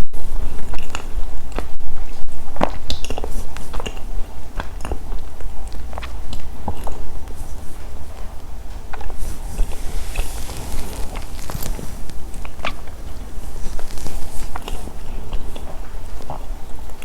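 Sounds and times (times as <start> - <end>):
small crackles: 0.0 - 17.0
crunching and chewing: 0.3 - 17.0
microphone hum: 7.2 - 16.6.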